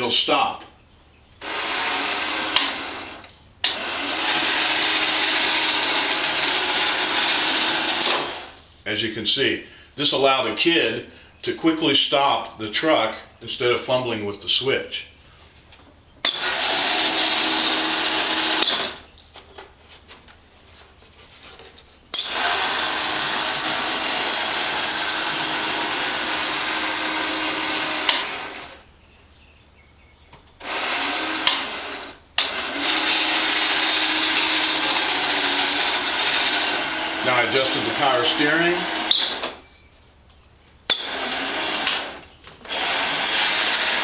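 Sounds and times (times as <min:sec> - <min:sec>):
toy truck motor whirring: 0:22.2 - 0:28.8, 0:30.6 - 0:39.6, 0:40.9 - 0:44.0.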